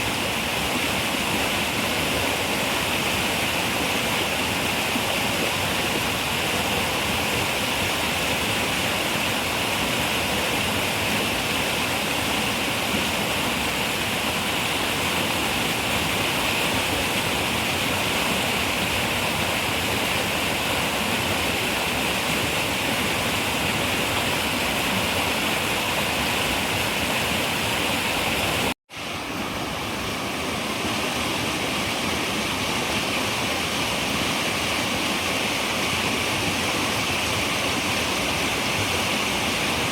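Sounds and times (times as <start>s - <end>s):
river water rushing and gurgling: 0.0s - 39.9s.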